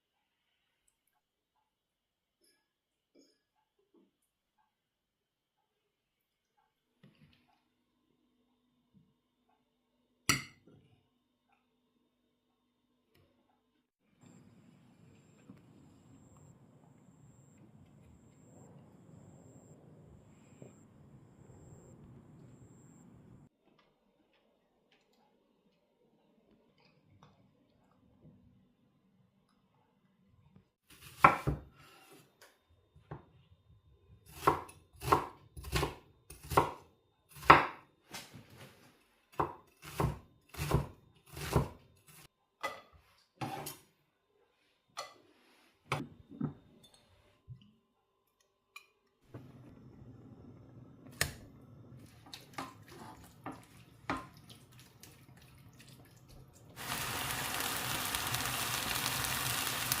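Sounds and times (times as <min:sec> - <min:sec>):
knife chopping on cutting board: 0:31.0 - 0:31.6, 0:39.4 - 0:41.8
food sizzling in hot pan: 0:56.8 - 1:00.0.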